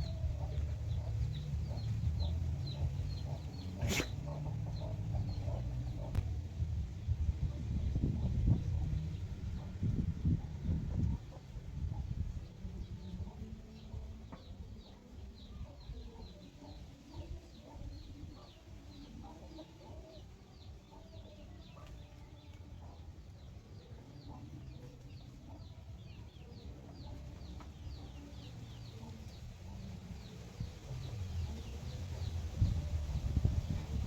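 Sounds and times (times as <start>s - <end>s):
chickens clucking: 0.0s - 6.2s.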